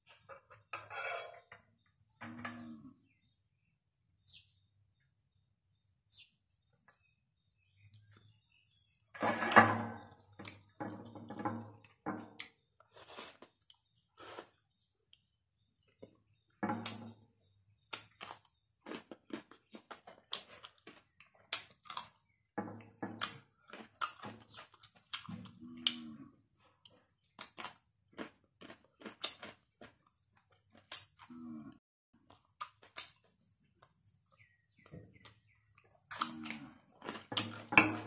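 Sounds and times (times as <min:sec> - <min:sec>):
chewing: 0:17.9 - 0:22.4, 0:23.2 - 0:31.6, 0:32.2 - 0:38.0.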